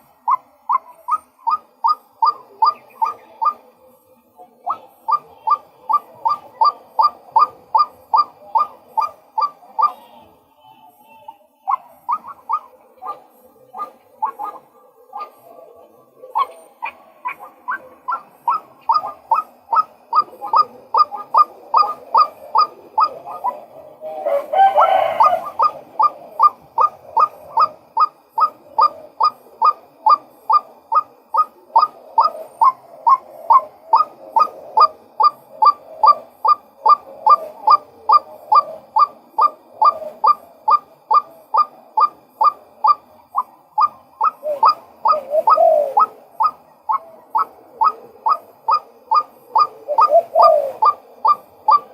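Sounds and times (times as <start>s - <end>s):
waterhen calling: 0.0s - 3.7s, 4.6s - 15.6s, 16.3s - 51.9s.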